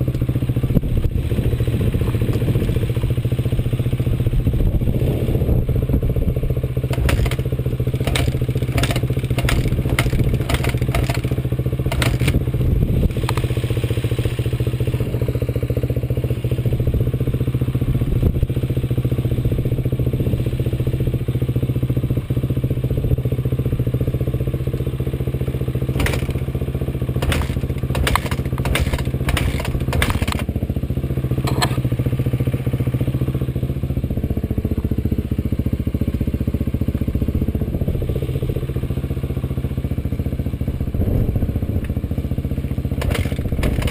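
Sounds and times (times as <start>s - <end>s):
off-road vehicle engine running: 0.0s - 43.9s
rapid clattering knocks: 6.9s - 12.4s, 26.0s - 26.5s, 27.2s - 30.5s, 43.0s - 43.9s.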